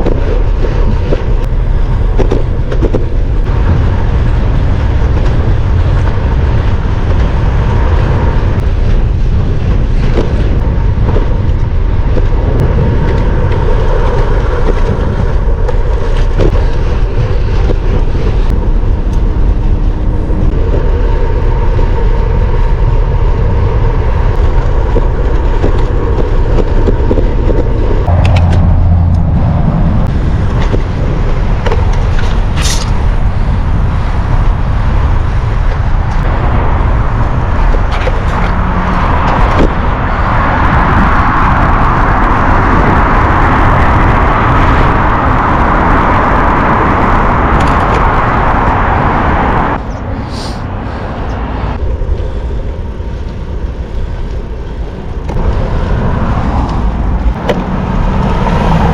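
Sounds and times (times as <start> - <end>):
deep rumble: 0.0 - 58.9
motor traffic: 0.0 - 58.9
road noise: 0.0 - 58.9
wind rush on microphone: 0.0 - 58.9.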